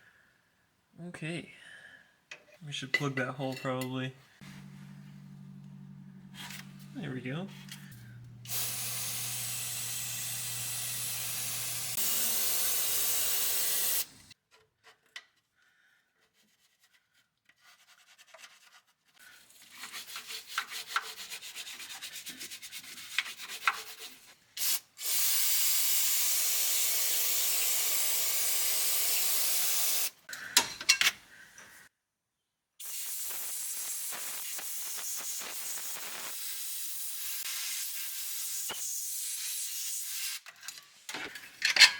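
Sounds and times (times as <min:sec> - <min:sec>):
pressurised spray hissing: 0:04.4 - 0:14.3, 0:24.6 - 0:30.2, 0:32.8 - 0:38.9.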